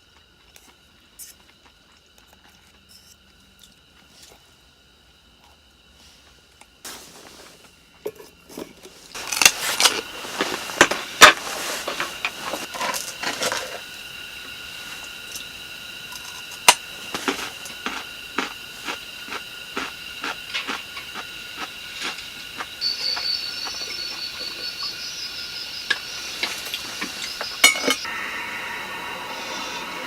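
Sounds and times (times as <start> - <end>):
thin hiss: 5.9 - 7.8, 9.1 - 30.0.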